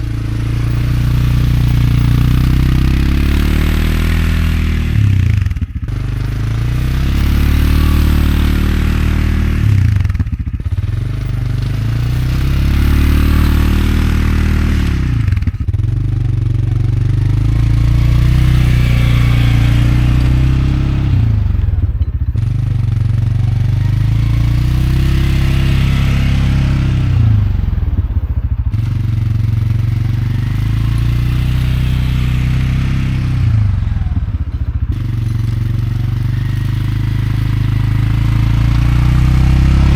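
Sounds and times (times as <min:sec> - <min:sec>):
plow blade scraping snow: 0:00.0 - 0:39.9
quad bike engine revving: 0:00.0 - 0:39.9.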